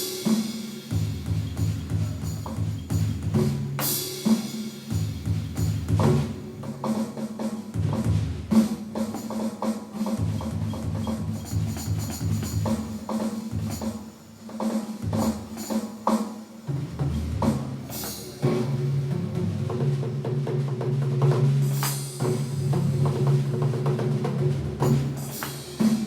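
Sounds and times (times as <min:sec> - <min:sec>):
timpani drum booms: 0:00.0 - 0:09.3, 0:16.7 - 0:26.0.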